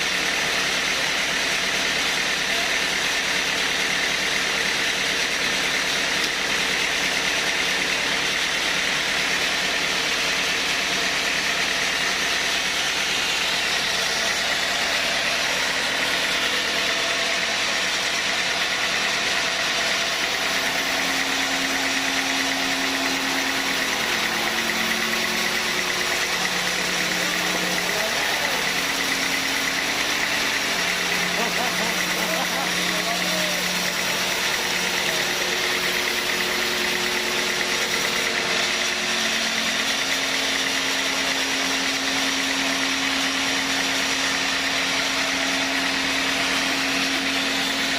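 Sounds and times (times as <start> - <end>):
sawmill machinery running: 0.0 - 47.9.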